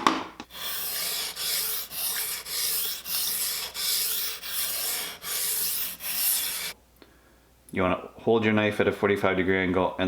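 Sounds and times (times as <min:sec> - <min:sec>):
knife scraping on whetstone: 0:00.5 - 0:06.8.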